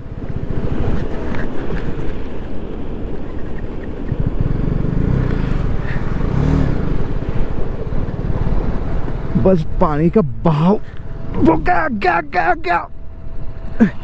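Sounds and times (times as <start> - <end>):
motorcycle engine revving: 4.2 - 9.3.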